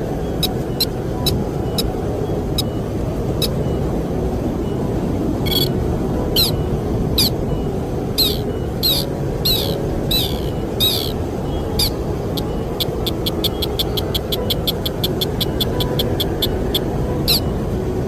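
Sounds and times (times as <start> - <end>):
bird calls sliding downward: 5.5 - 5.7, 8.2 - 11.2
fast run of short bird notes: 5.5 - 5.7, 8.2 - 16.6.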